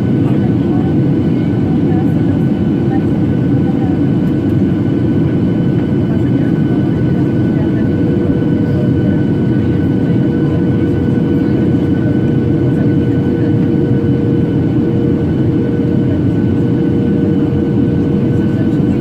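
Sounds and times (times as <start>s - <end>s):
jet engine cabin rumble: 0.0s - 19.0s.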